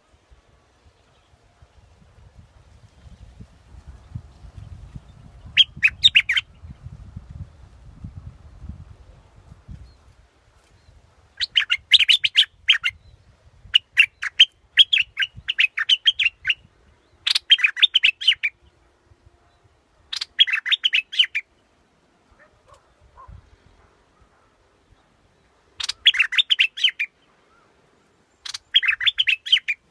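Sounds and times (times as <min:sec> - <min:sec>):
bulbul chirping song: 0:05.4 - 0:06.6, 0:11.4 - 0:18.7, 0:20.1 - 0:21.5, 0:25.8 - 0:27.2, 0:28.4 - 0:29.9.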